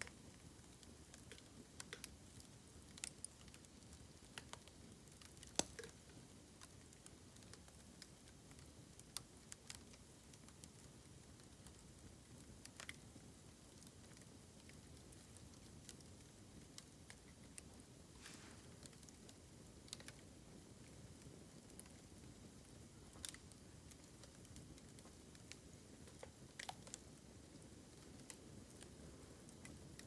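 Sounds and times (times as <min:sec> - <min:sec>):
bamboo fire crackling: 0:00.0 - 0:30.0
faint hiss: 0:14.5 - 0:30.0.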